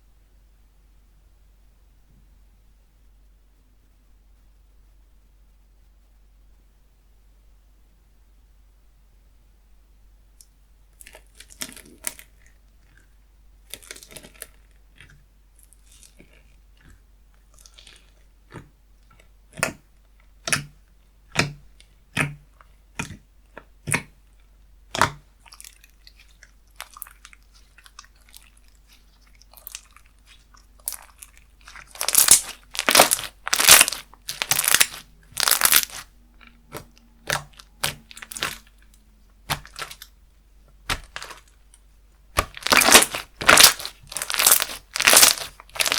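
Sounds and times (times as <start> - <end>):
slime crackly squishes: 11.0 - 45.9.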